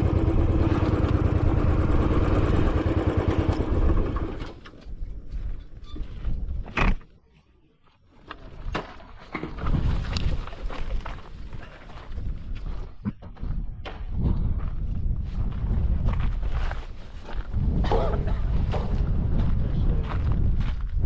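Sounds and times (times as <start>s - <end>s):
motorcycle engine running: 0.0s - 4.6s.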